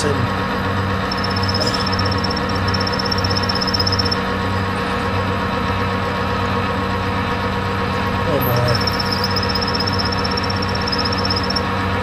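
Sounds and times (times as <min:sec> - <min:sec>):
thin high whine: 0:01.1 - 0:04.2, 0:08.6 - 0:11.6.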